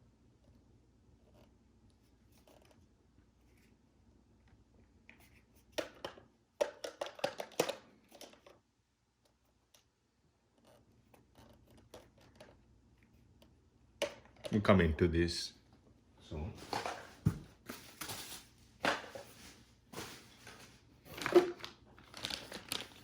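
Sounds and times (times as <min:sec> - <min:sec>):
plastic parts clicking and clattering: 0:05.7 - 0:08.6, 0:20.4 - 0:23.0.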